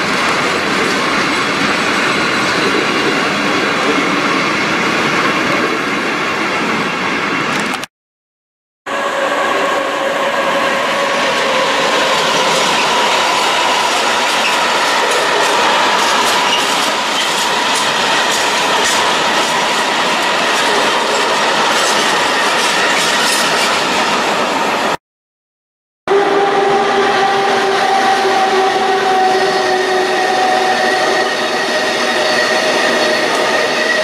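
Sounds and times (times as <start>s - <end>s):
wheels rumbling on rail: 0.0s - 7.7s, 8.9s - 25.0s
wheel squeal: 27.8s - 34.0s.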